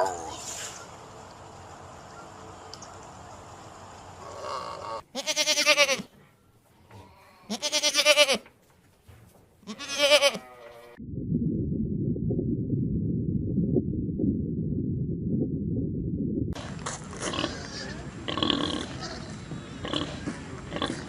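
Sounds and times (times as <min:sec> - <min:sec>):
sheep or goat bleating: 0:04.4 - 0:06.1, 0:07.0 - 0:08.5, 0:09.6 - 0:11.0
low rumbling noise: 0:11.0 - 0:20.7.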